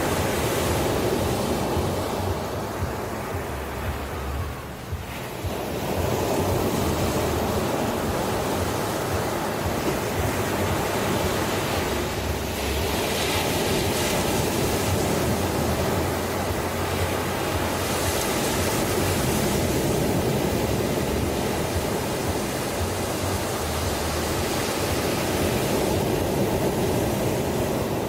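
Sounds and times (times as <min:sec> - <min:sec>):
ocean surf washing on shore: 0:00.0 - 0:28.0.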